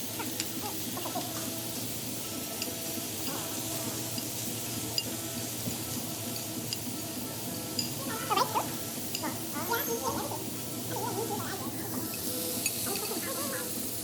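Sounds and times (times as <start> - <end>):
dining room background noise: 0.0 - 14.0
dishes and cutlery clinking: 2.5 - 7.0, 7.7 - 10.3.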